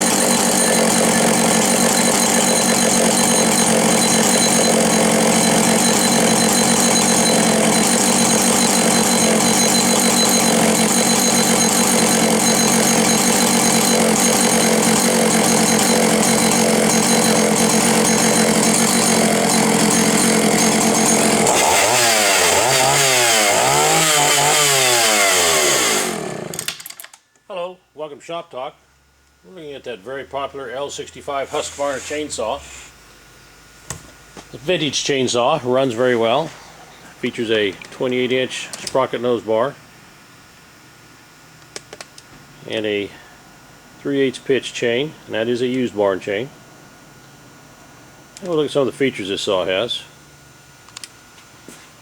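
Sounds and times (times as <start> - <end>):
chainsaw revving: 0.0 - 27.0, 31.3 - 32.7.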